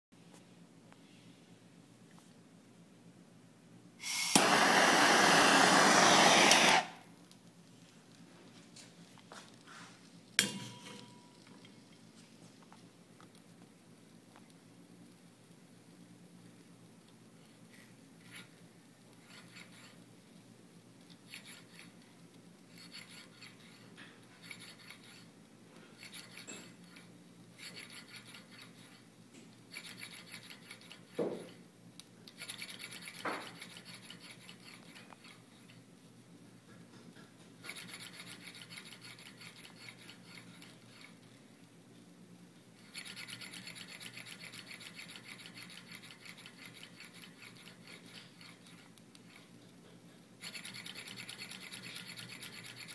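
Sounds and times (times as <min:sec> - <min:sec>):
model engine rubbing strokes: 0:19.2 - 0:20.0, 0:21.3 - 0:22.0, 0:22.7 - 0:25.3, 0:25.9 - 0:29.1, 0:29.7 - 0:31.1, 0:32.4 - 0:35.4, 0:37.6 - 0:41.2, 0:42.8 - 0:49.5, 0:50.4 - 0:52.9.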